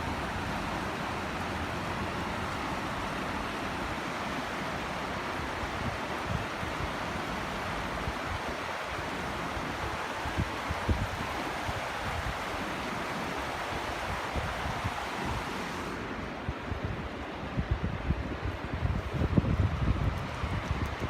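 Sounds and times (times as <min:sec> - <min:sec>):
rush of falling water: 0:00.0 - 0:21.0
wind buffeting microphone: 0:09.6 - 0:12.5, 0:16.3 - 0:21.0.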